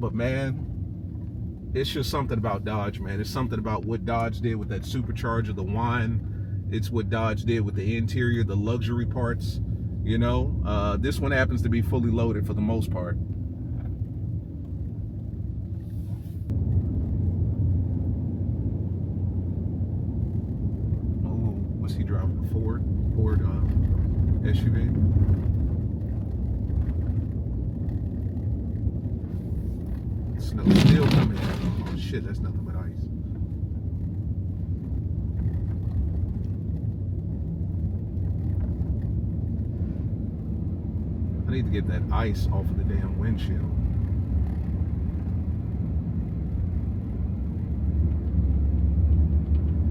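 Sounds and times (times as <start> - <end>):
truck engine rumble from inside cab: 0.0 - 49.9
tyre noise on icy road: 20.2 - 49.9
tyres on snow: 30.4 - 32.2.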